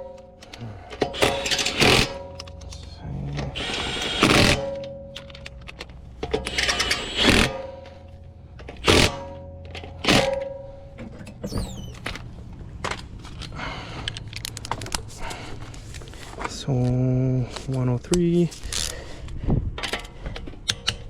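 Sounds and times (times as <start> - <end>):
high squeak: 11.4 - 12.0.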